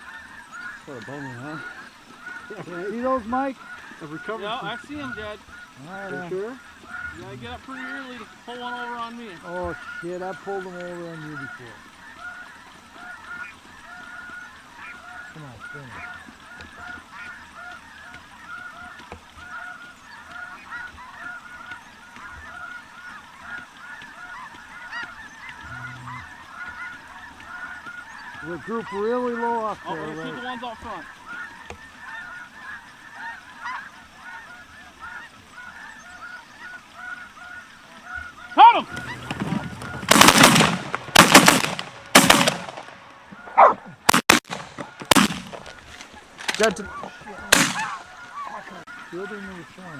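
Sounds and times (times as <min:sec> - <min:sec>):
flock of geese calling: 0:00.0 - 0:49.9
loud shotgun blasts with echo: 0:38.8 - 0:46.8, 0:47.5 - 0:48.1.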